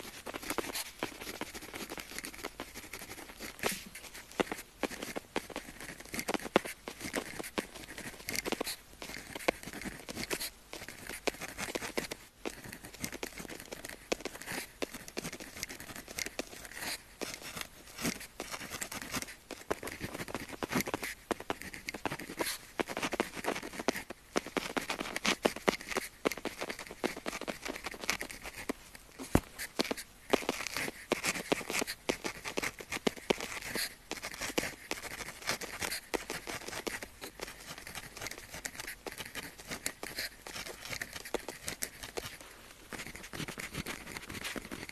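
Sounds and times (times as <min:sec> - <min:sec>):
pen writing on paper: 0:00.0 - 0:44.9.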